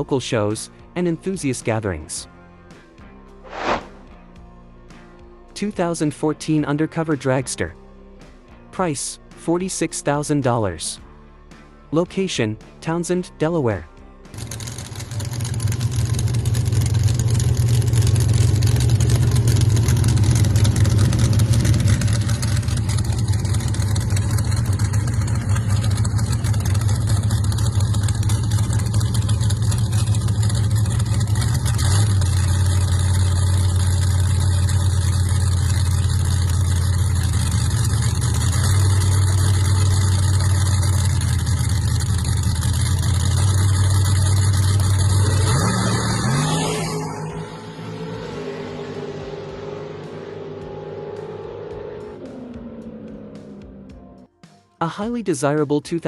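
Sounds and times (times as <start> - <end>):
dragster engine idling: 14.3 - 46.2.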